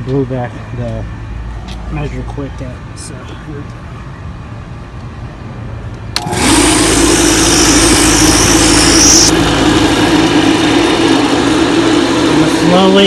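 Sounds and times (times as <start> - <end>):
vacuum pump running: 6.2 - 13.0.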